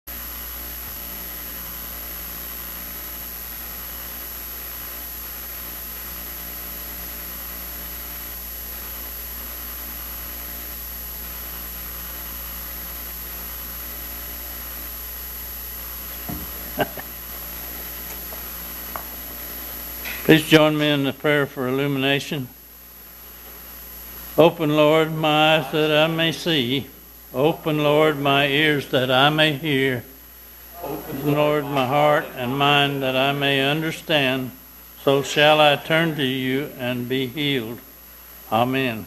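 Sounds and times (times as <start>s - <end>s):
faint high whine: 0.1s - 39.0s
low hum: 22.5s - 37.9s.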